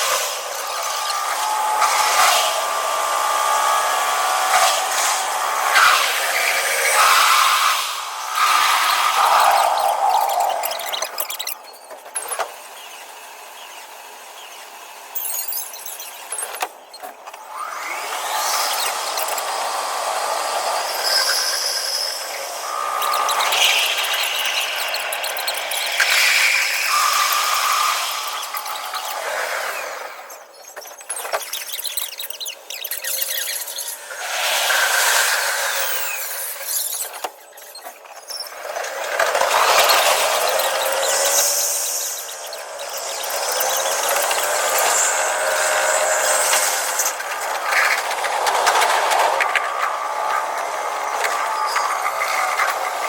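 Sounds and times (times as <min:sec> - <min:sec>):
electric train motors whining: 0:00.0 - 0:53.0
metallic wheel squeal: 0:20.8 - 0:29.2.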